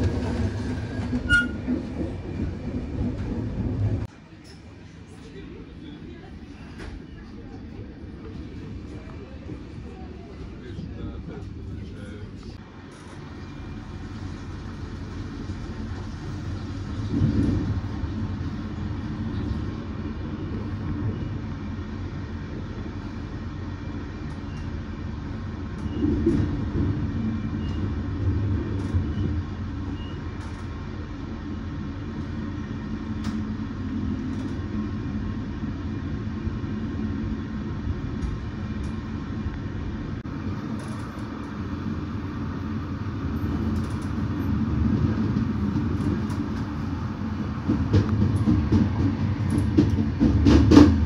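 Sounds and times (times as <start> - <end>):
train low rumble: 0.0 - 51.0.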